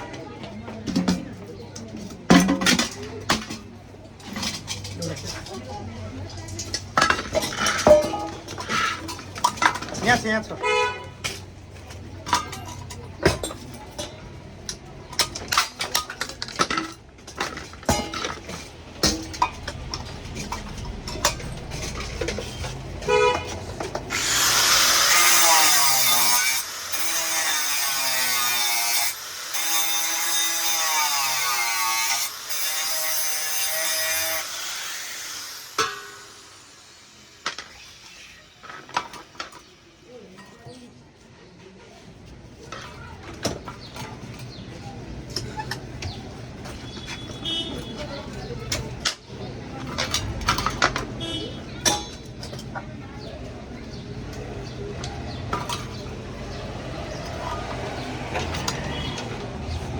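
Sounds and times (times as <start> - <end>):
high-pitched power tool: 24.1 - 39.3.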